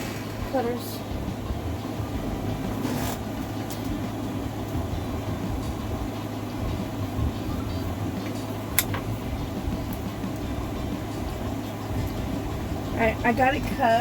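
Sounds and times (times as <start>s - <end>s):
low room hum: 0.0s - 14.0s
wire cutters snapping twine: 8.2s - 9.1s.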